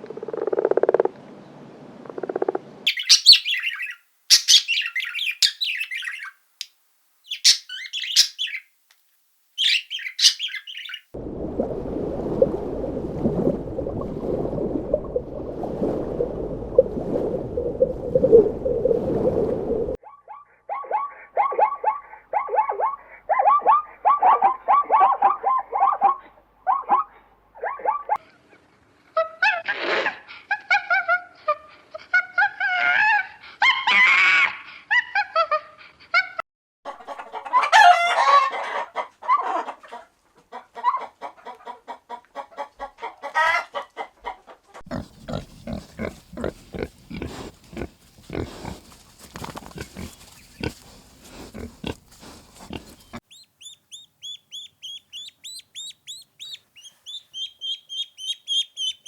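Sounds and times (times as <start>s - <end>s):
chickens clucking: 36.9s - 59.0s
chicks peeping: 49.8s - 59.0s.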